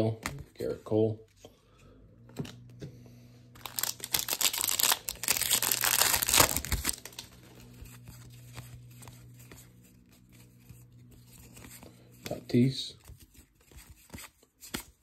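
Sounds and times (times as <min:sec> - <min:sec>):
foil wrapper tearing and crinkling: 0:03.6 - 0:07.4
handling wrapper and cards: 0:03.6 - 0:15.0.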